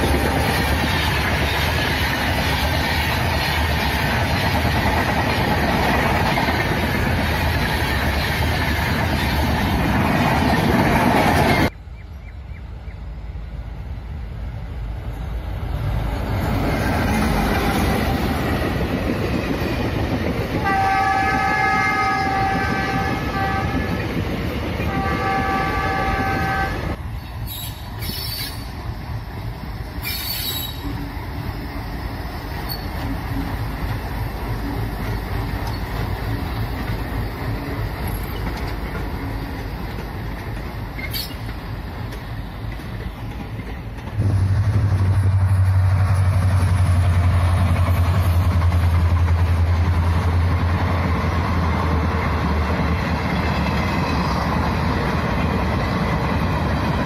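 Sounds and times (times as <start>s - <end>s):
coaches rolling on rails: 0.0s - 11.9s, 12.7s - 57.0s
diesel locomotive pulling away: 12.6s - 57.0s.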